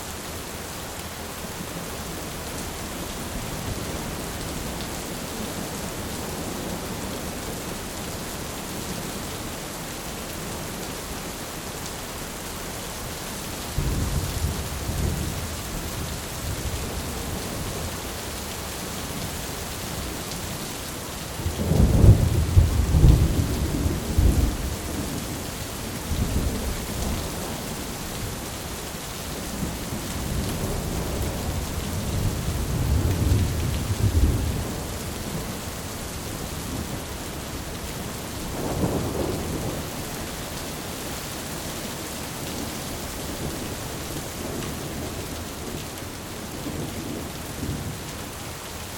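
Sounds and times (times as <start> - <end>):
rain hissing: 0.0 - 48.9
thunder rumbling: 21.4 - 25.4, 37.9 - 40.0.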